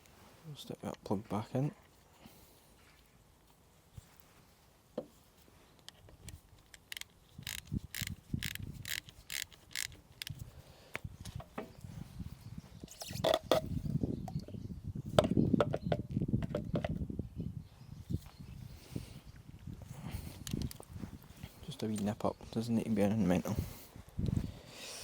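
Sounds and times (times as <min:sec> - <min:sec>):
ratchet wrench clicking: 0:06.7 - 0:10.4.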